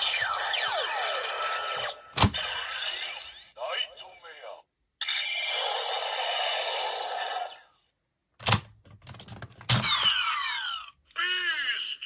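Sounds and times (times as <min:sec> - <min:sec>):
plastic click: 0:08.4 - 0:10.1.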